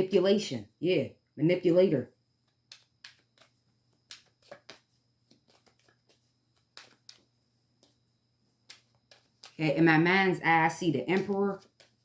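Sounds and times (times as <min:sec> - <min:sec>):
cards snapping and tapping: 0:02.6 - 0:08.0, 0:08.6 - 0:09.6.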